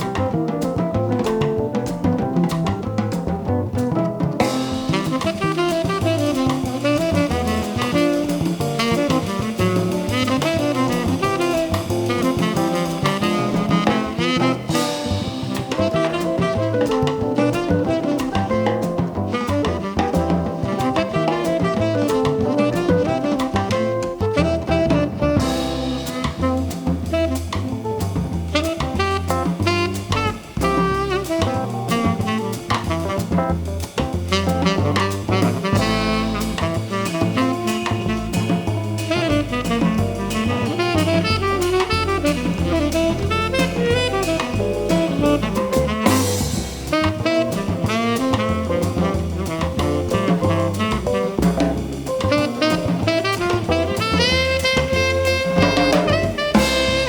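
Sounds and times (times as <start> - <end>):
jazz band playing: 0.0 - 57.0
saxophone: 4.4 - 57.0.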